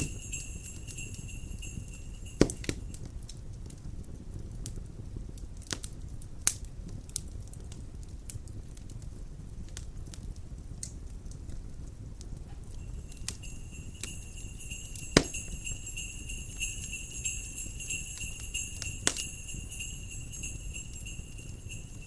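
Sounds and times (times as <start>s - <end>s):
jingle bells shaking: 0.0s - 3.0s, 12.8s - 22.0s
crackling wood fire: 0.0s - 22.0s.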